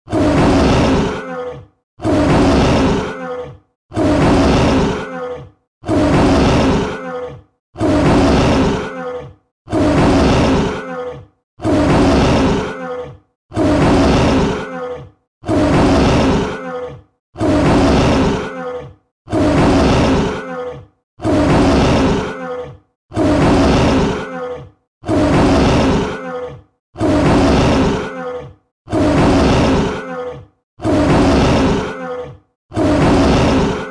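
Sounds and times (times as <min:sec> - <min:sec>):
tiger roar: 0:00.1 - 0:12.8, 0:13.5 - 0:14.8, 0:15.4 - 0:16.7, 0:17.4 - 0:18.6, 0:19.3 - 0:20.5, 0:21.2 - 0:22.4, 0:23.1 - 0:24.3, 0:25.0 - 0:26.2, 0:28.9 - 0:30.0, 0:30.8 - 0:32.0, 0:32.7 - 0:33.9.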